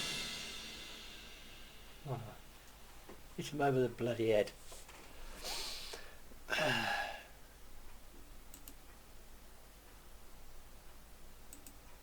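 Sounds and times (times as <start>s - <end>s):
faint sharp clicks: 8.2s - 9.0s, 11.5s - 12.0s.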